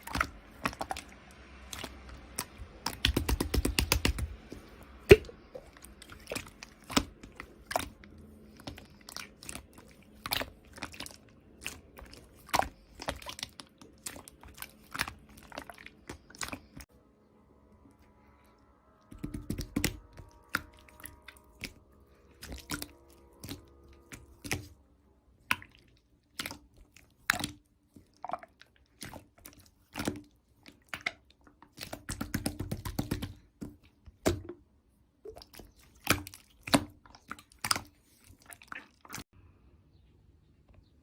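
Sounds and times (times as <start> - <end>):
slime squishing by hand: 0.0 - 16.9, 18.0 - 39.2.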